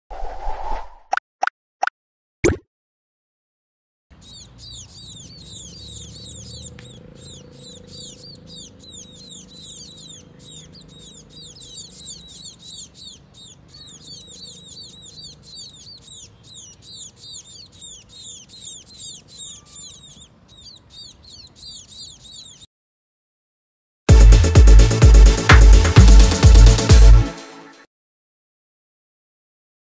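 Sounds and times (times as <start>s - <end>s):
songbirds chirping: 4.1s - 22.7s.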